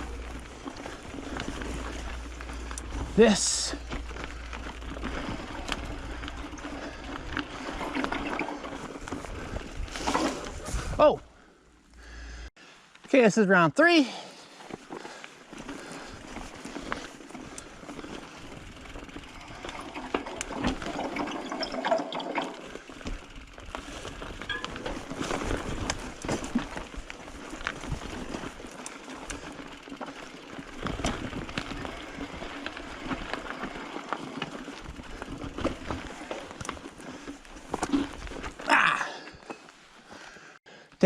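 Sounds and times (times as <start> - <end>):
bike knocking and rattling: 0.0 - 12.2, 14.6 - 40.6
bike tyres rolling on dirt: 0.0 - 41.0.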